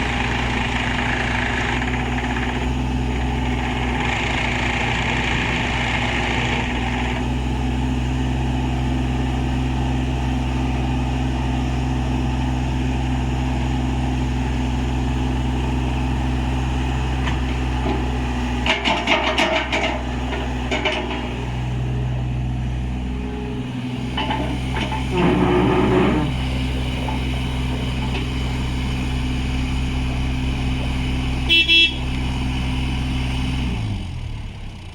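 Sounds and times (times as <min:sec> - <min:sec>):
excavator diesel engine running: 0:00.0 - 0:34.9
excavator horn toots: 0:31.4 - 0:32.2.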